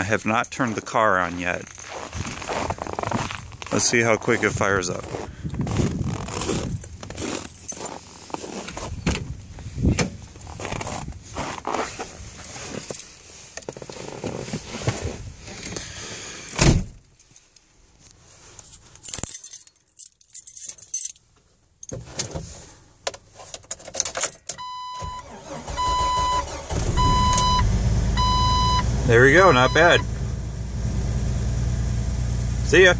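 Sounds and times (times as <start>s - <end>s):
car keys jangling: 2.5s - 3.8s, 6.0s - 9.0s, 10.1s - 11.5s, 12.2s - 14.1s, 18.5s - 22.4s, 23.2s - 24.6s
loud thump: 16.6s - 17.0s
dashboard warning chime beeping: 24.6s - 30.1s.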